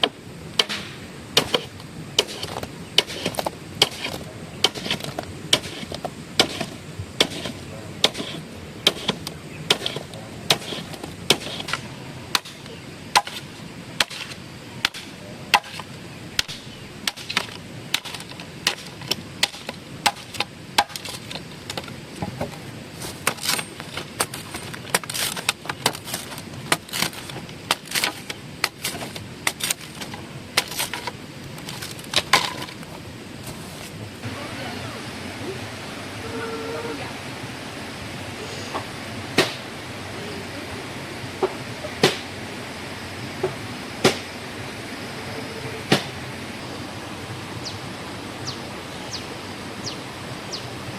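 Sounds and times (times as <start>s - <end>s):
hand tool chopping blows: 0.0s - 21.2s, 39.4s - 39.7s, 42.0s - 42.3s, 44.0s - 44.3s, 45.9s - 46.2s.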